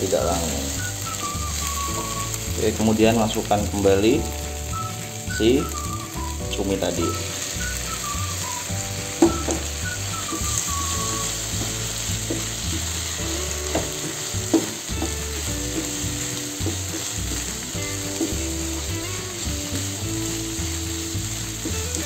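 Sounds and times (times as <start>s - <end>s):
squid sizzling in frying pan: 0.0s - 22.0s
wooden spatula scraping pan: 9.1s - 18.8s.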